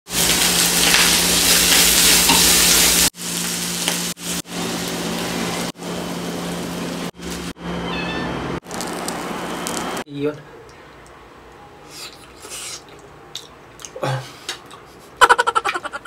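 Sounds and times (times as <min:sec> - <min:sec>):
food sizzling in a frying pan: 0:00.1 - 0:07.6, 0:08.6 - 0:10.0.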